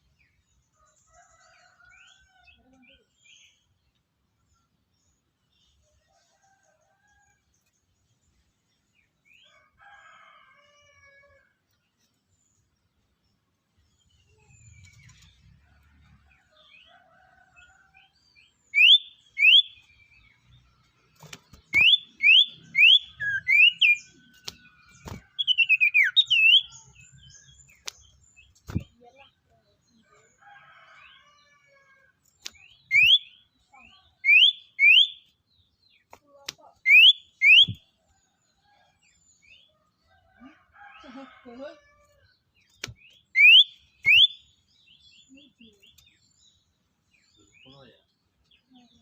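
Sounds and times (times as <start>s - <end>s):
songbird whistled notes: 36.9s - 37.8s, 43.4s - 44.4s.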